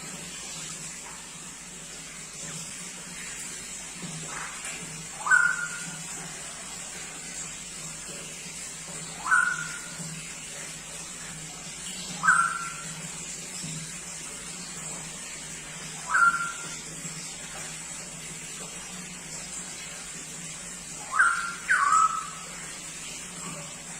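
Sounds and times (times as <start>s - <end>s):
background hiss and hum: 0.0s - 23.9s
bird whistling upward notes: 5.2s - 5.9s, 9.2s - 9.9s, 12.2s - 12.8s, 16.0s - 16.7s, 21.0s - 22.4s.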